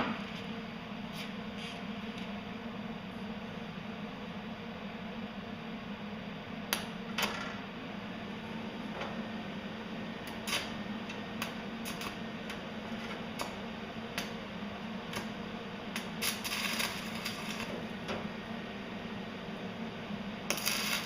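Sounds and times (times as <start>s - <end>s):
exhaust fan humming: 0.0s - 21.0s
welding arc crackling: 10.2s - 18.5s, 20.4s - 21.0s.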